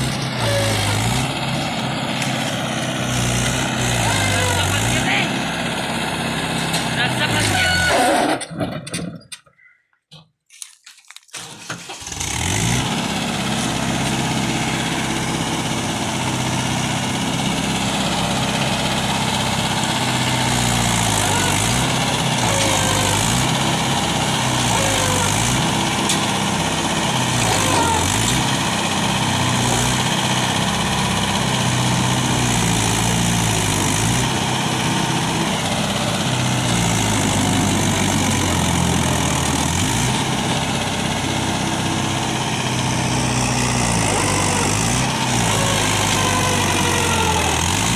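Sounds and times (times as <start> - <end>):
tractor diesel engine revving: 0.0 - 8.6, 11.3 - 47.9.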